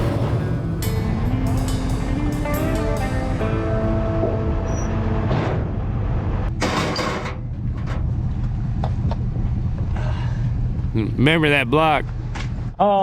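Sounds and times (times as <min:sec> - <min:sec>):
music: 0:00.0 - 0:07.0
diesel engine running: 0:00.0 - 0:12.8.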